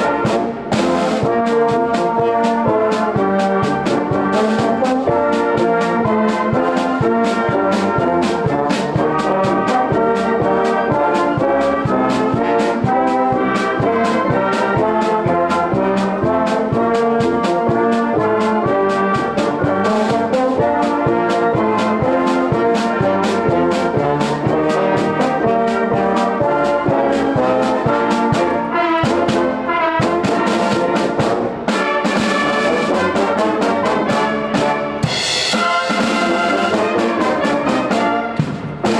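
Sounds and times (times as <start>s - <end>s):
brass band music: 0.0s - 38.9s.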